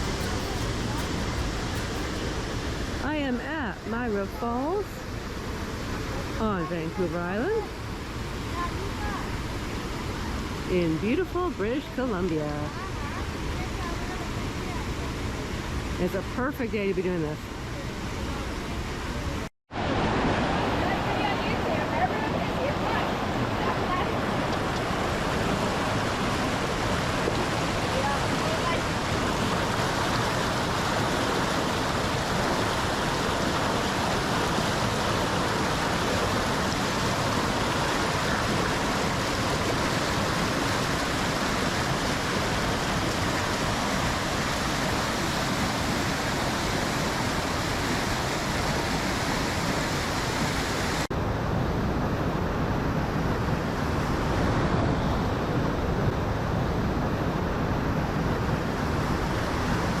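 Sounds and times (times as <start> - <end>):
waterfall rushing: 0.0 - 10.7, 19.2 - 51.1.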